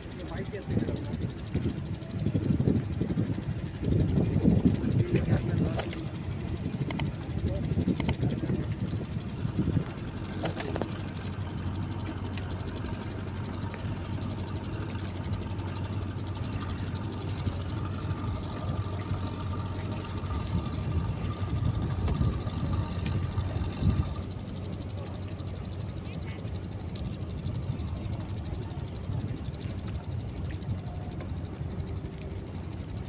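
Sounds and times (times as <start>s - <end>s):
engine humming steadily: 0.0s - 33.0s
short high-pitched beep: 8.9s - 10.7s.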